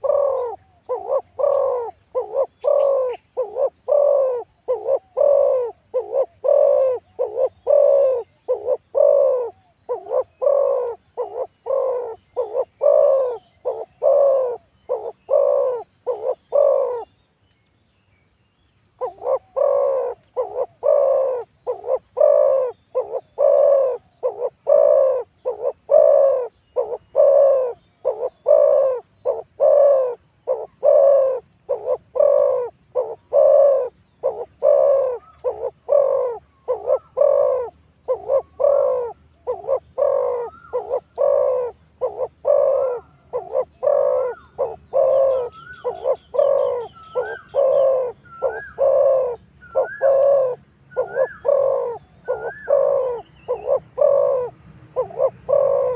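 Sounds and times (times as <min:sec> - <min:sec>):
doves cooing: 0:00.0 - 0:17.2, 0:19.0 - 0:55.9.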